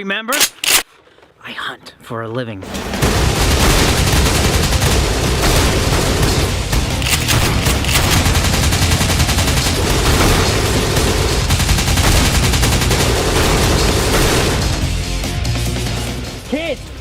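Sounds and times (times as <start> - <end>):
automatic gunfire: 2.9 - 14.8.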